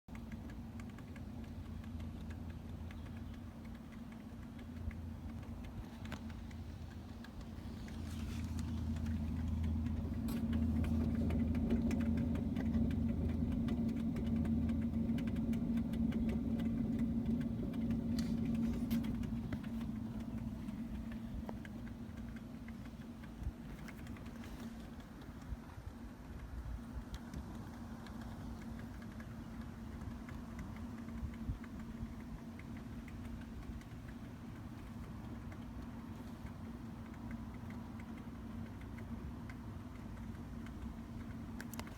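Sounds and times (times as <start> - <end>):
car hum: 3.1 - 25.0.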